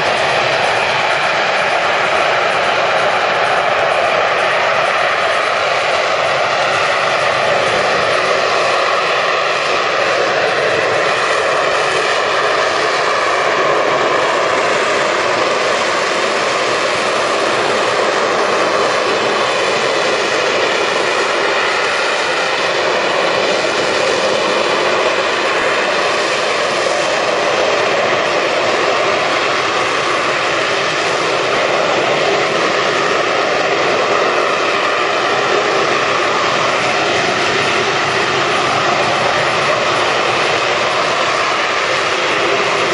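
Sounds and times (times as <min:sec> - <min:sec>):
jet engine roar: 0:00.0 - 0:42.9.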